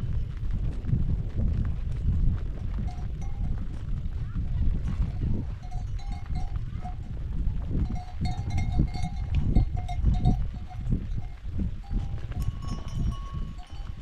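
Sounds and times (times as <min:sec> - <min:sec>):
livestock neck bell ringing: 0:02.9 - 0:03.6, 0:04.8 - 0:14.0.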